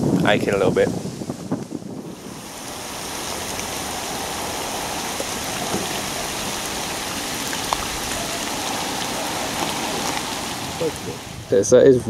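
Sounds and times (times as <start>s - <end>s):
rain falling on a river: 2.2s - 11.6s.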